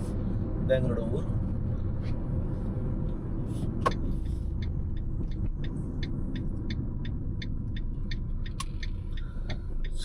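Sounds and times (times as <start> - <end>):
car cabin road rumble: 0.0 - 10.0
turn indicator ticking: 2.9 - 10.0.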